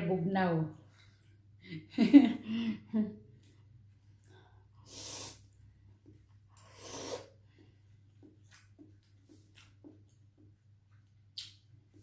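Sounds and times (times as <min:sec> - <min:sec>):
soft chewing sounds: 0:00.7 - 0:01.6, 0:03.2 - 0:04.8, 0:05.4 - 0:12.0
sharp breath or slurp: 0:04.8 - 0:05.5, 0:06.6 - 0:07.4.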